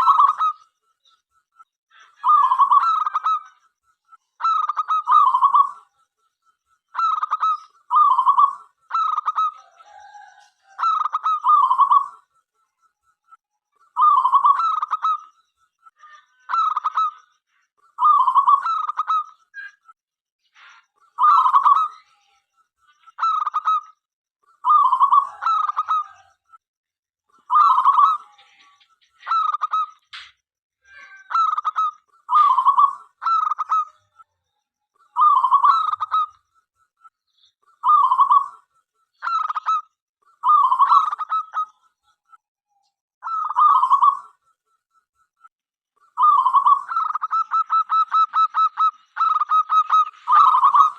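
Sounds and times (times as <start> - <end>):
dove cooing: 24.6 - 26.3, 35.2 - 36.3, 37.8 - 38.6, 40.4 - 41.7, 43.2 - 44.3, 46.2 - 50.9.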